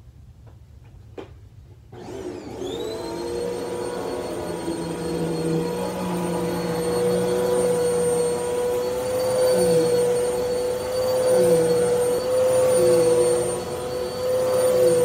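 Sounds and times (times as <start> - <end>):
vacuum cleaner running: 1.9 - 15.0.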